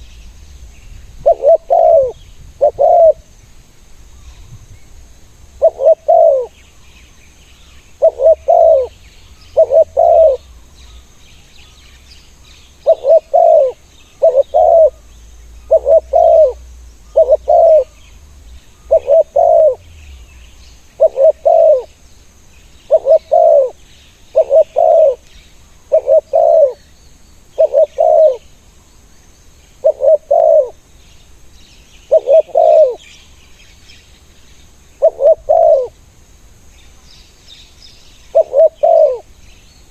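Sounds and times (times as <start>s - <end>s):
small birds chirping: 0.0s - 36.0s, 36.6s - 39.9s
dove cooing: 1.2s - 3.3s, 5.6s - 6.6s, 8.0s - 10.5s, 12.8s - 18.1s, 18.8s - 20.0s, 20.9s - 21.9s, 22.9s - 25.2s, 25.9s - 26.9s, 27.6s - 28.5s, 29.8s - 30.8s, 32.1s - 33.0s, 35.0s - 36.0s, 38.3s - 39.3s.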